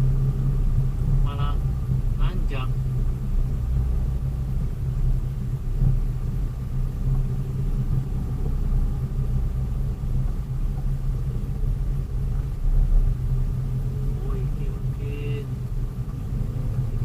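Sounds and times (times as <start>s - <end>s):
road noise: 0.0s - 17.0s
vehicle engine rumble: 0.0s - 17.0s.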